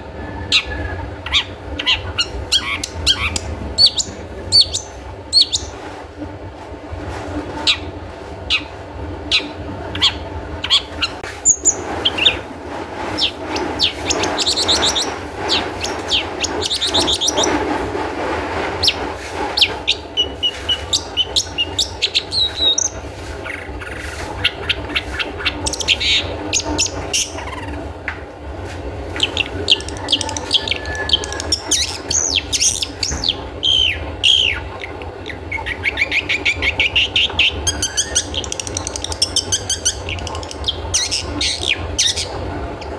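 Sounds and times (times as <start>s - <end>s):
steady low hum: 0.0s - 42.9s
bird singing trills: 0.4s - 5.8s, 9.3s - 12.4s, 13.2s - 17.6s, 19.6s - 23.0s, 24.4s - 27.8s, 29.2s - 42.9s.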